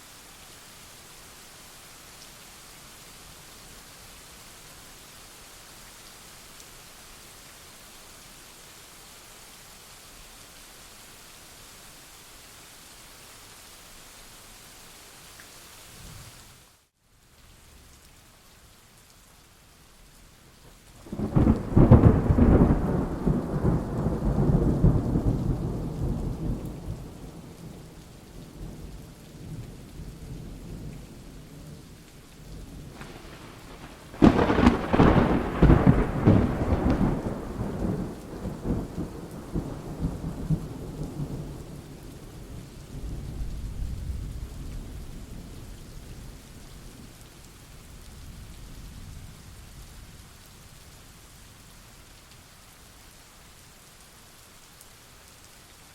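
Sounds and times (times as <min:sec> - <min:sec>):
steady rain: 0:00.0 - 0:55.9
thunder rumbling: 0:21.0 - 0:27.9, 0:32.8 - 0:41.7.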